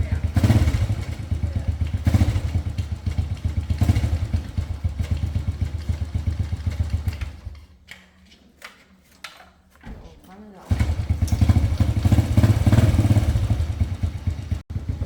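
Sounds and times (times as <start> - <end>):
small motorcycle engine running: 0.0 - 7.6, 10.7 - 15.0.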